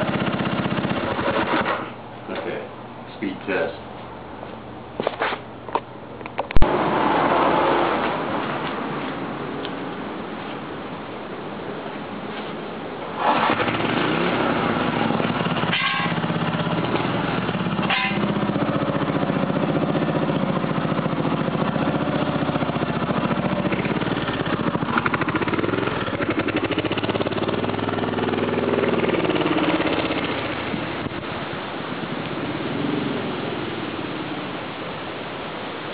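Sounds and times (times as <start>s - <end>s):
motorcycle engine running hard: 0.0s - 1.9s, 13.2s - 31.3s.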